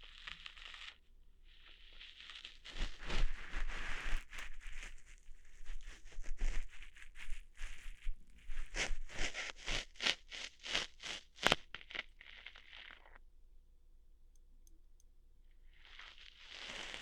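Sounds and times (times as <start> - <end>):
brushing rustle: 1.7 - 11.2, 15.8 - 17.0
ear hair plucking pulls: 8.4 - 13.2, 15.8 - 17.0.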